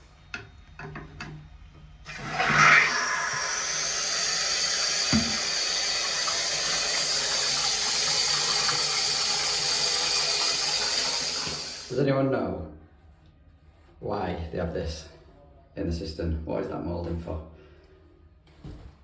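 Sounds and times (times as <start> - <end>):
toilet cistern filling: 2.1 - 12.0.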